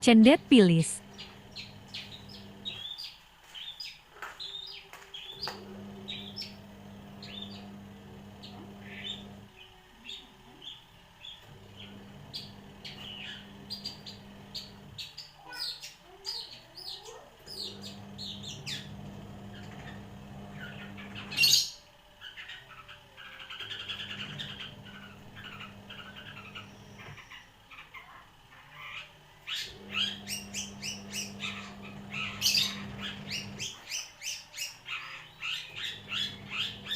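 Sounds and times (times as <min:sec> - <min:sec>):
bird singing chirps and trills: 0:20.6 - 0:36.9.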